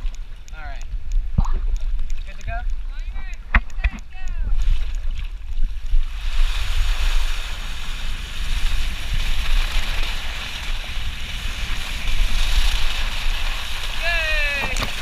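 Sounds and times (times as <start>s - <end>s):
water rushing down a slide: 6.1s - 15.0s.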